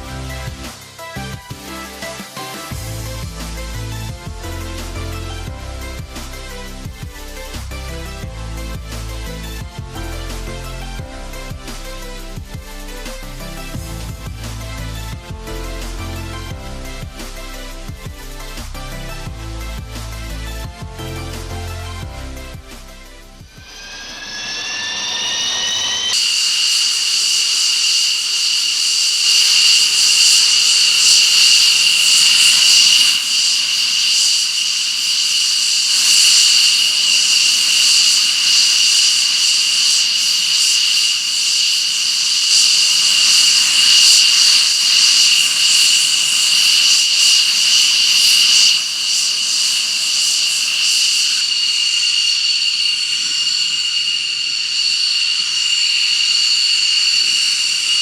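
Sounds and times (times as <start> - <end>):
jet engine whining: 22.8 - 58.0.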